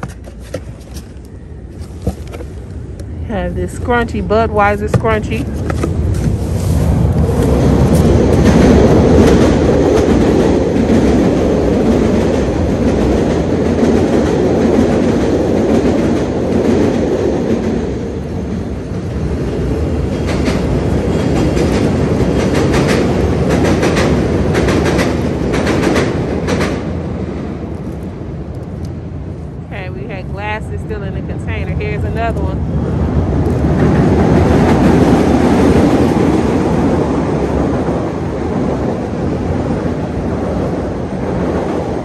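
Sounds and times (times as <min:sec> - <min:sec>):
train rumble passing: 0:00.0 - 0:42.0
wheels clacking over rails: 0:19.3 - 0:27.5.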